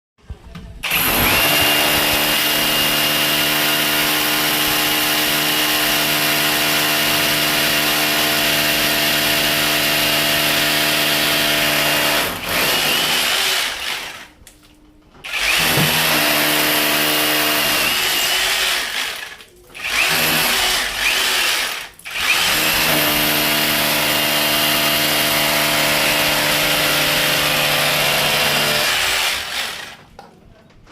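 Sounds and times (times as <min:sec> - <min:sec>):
cordless drill motor whining: 0:00.8 - 0:04.8, 0:15.2 - 0:30.0.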